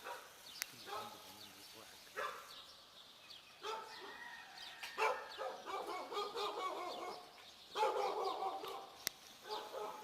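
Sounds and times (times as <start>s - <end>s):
small birds chirping: 0.0s - 10.0s
dog barking and yelping: 3.6s - 4.1s, 5.0s - 10.0s.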